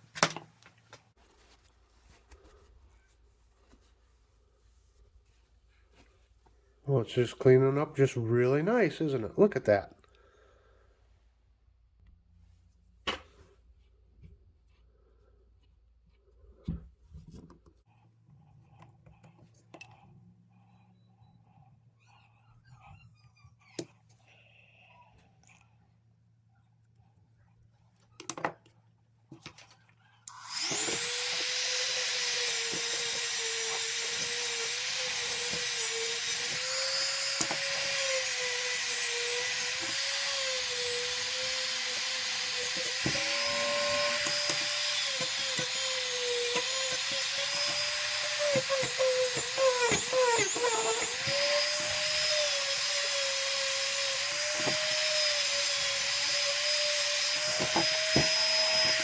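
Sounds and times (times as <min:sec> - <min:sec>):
rotary tool motor whining: 0:30.3 - 0:59.0.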